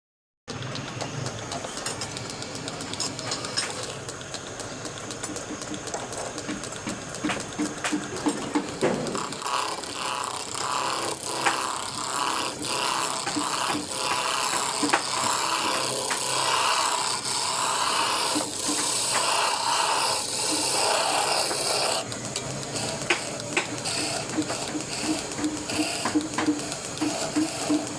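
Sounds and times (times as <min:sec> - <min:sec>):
hand tool rasping on wood: 0:07.8 - 0:27.9.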